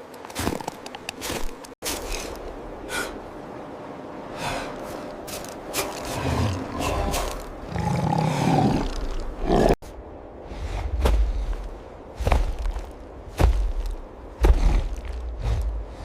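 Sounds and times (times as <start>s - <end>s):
big cat growling and roaring: 6.1s - 9.8s.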